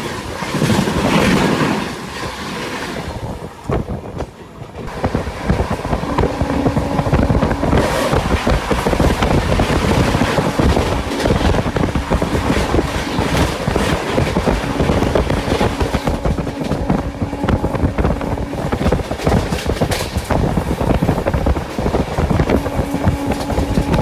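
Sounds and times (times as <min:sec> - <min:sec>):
train wheels rumbling on track: 0:00.0 - 0:24.0
wind noise: 0:00.0 - 0:24.0
steady hum: 0:04.9 - 0:24.0.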